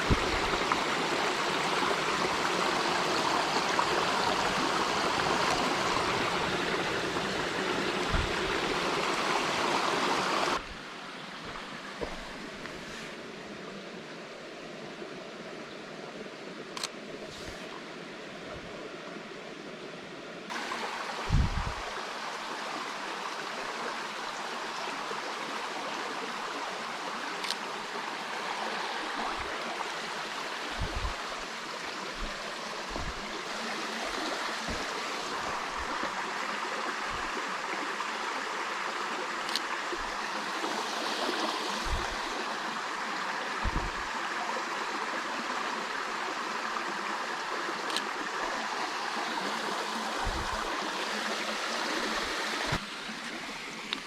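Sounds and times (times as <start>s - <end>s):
running water rushing: 0.0s - 54.0s
soft low thumps: 8.1s - 8.7s, 30.7s - 31.4s, 32.2s - 33.4s, 41.8s - 42.3s, 43.6s - 44.1s, 50.2s - 50.7s.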